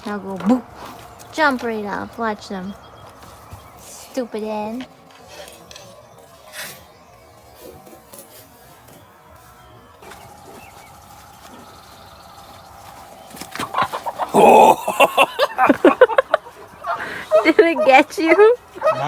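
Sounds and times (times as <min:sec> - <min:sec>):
hen clucking: 0:10.0 - 0:19.0.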